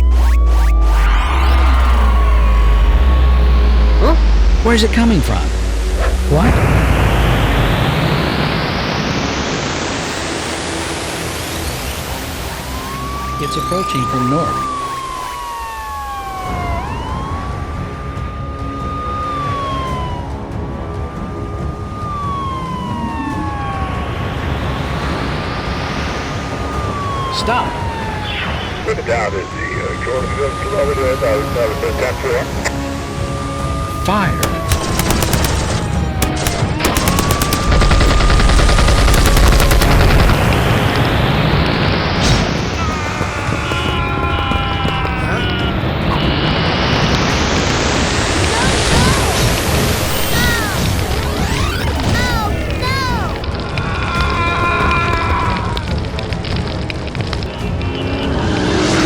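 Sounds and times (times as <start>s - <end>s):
emergency vehicle siren wailing: 0.0s - 59.0s
rapid machine-gun fire: 34.4s - 42.6s.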